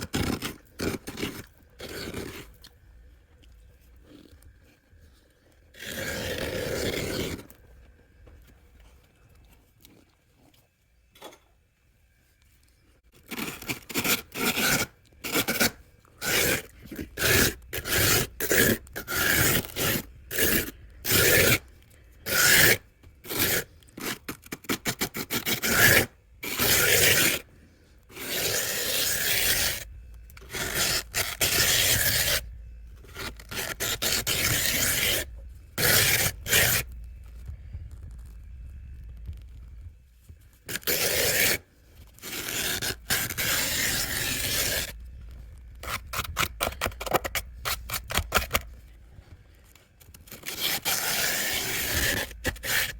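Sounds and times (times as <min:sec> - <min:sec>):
frost being scraped: 0:00.0 - 0:02.6, 0:05.8 - 0:07.5, 0:13.2 - 0:27.5, 0:28.1 - 0:37.4, 0:40.6 - 0:45.1, 0:45.8 - 0:48.7, 0:50.3 - 0:52.9.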